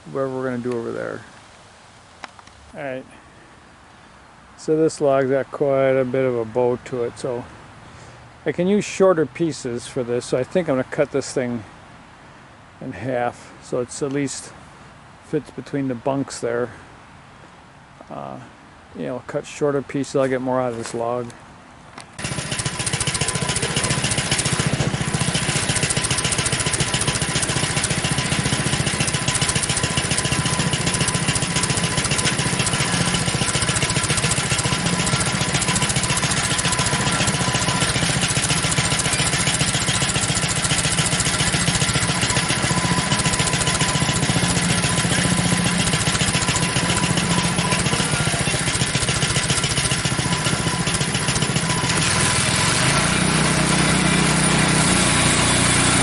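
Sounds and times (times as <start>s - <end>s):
small petrol engine running: 22.2s - 56.0s.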